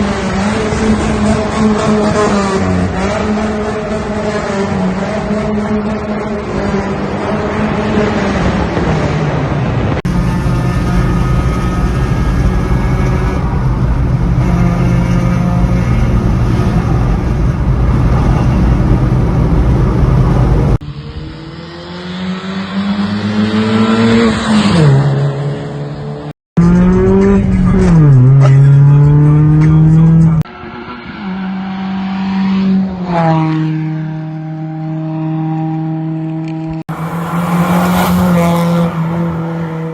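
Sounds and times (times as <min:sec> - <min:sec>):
car engine revving: 0:00.0 - 0:39.9
rushing noise: 0:36.9 - 0:39.9.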